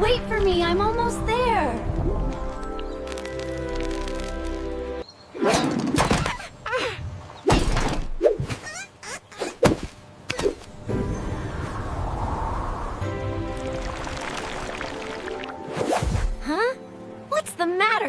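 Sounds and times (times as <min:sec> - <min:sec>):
cartoon thunks and whacks: 0:07.4 - 0:08.6.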